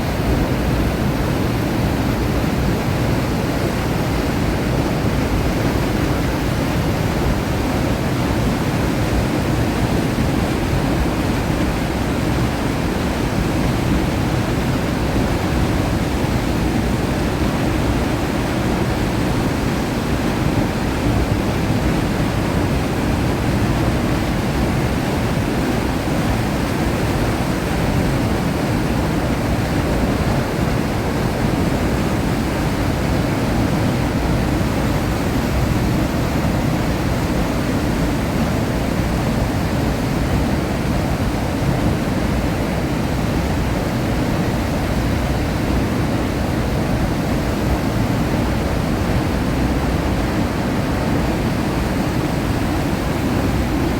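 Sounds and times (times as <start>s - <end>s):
fast river water: 0.0s - 53.9s.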